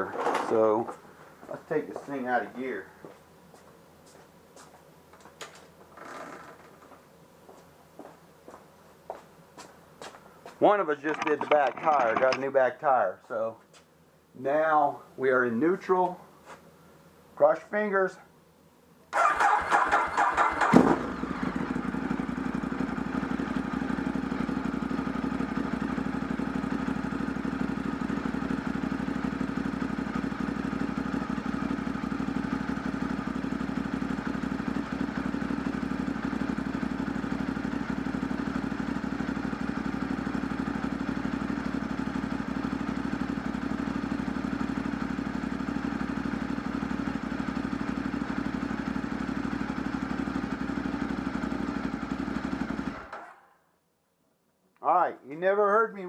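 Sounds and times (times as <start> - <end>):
motorcycle engine revving and idling: 19.2 - 53.5.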